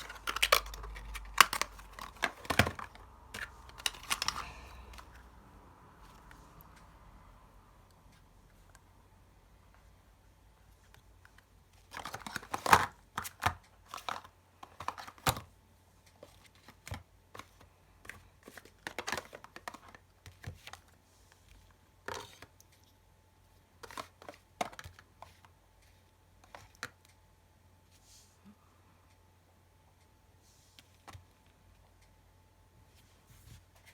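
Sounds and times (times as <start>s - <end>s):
crinkling and rustling: 0.0s - 5.3s, 10.6s - 27.1s, 32.8s - 33.9s.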